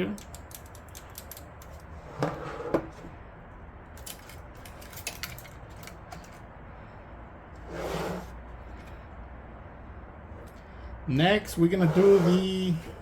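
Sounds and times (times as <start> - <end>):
plastic clicks and rattles: 0.1 - 1.8.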